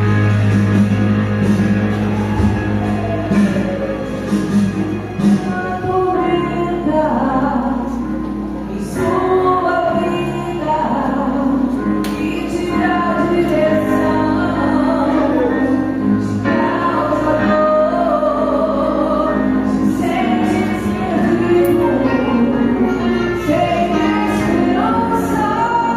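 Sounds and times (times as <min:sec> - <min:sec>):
gospel choir singing: 0:12.5 - 0:25.9.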